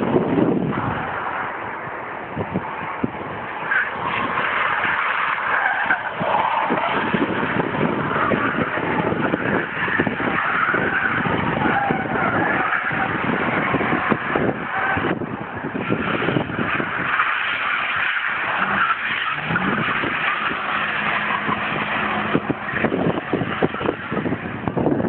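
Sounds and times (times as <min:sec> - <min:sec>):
tyres on wet road: 0:00.0 - 0:25.0.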